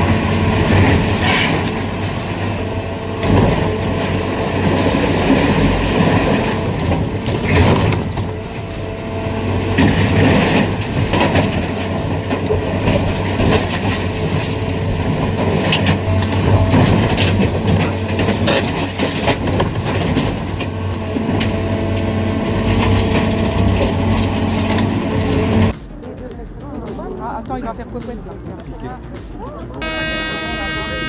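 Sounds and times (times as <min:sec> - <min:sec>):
heavy machine engine running: 0:00.0 - 0:25.8
knocks clanks and crunching: 0:00.0 - 0:25.8.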